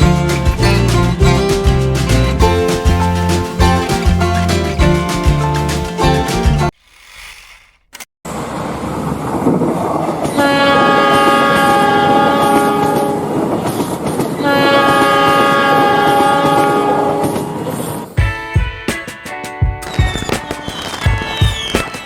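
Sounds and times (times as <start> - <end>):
locomotive horn blasts: 10.4 - 13.3, 14.4 - 17.7.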